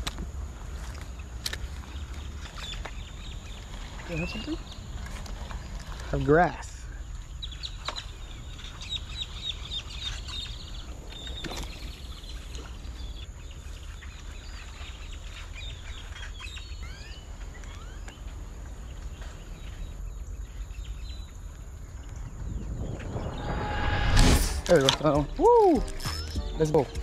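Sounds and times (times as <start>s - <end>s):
constant low rumble: 0.0s - 27.0s
birds chirping: 1.0s - 27.0s
steady high whine: 22.2s - 27.0s
rising whistled bird notes: 22.3s - 27.0s.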